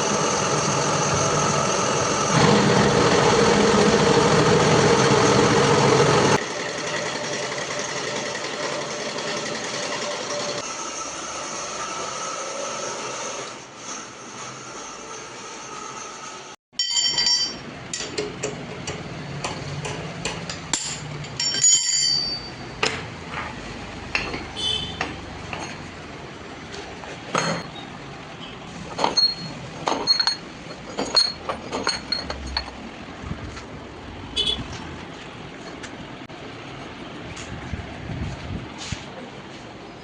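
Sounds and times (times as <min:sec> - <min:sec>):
metallic clinks: 0:16.8 - 0:18.0, 0:20.8 - 0:22.7
steady background noise: 0:16.8 - 0:40.0.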